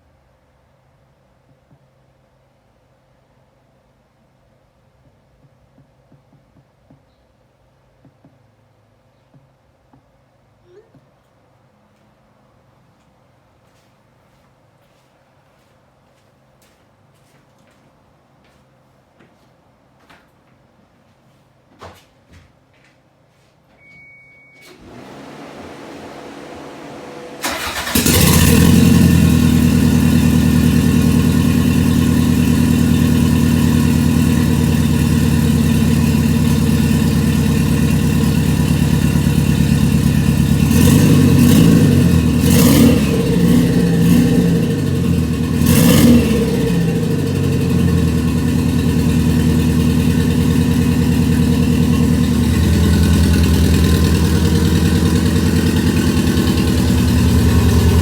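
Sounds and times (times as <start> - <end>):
car engine starting and idling: 24.7 - 58.0
engine revving: 24.8 - 58.0.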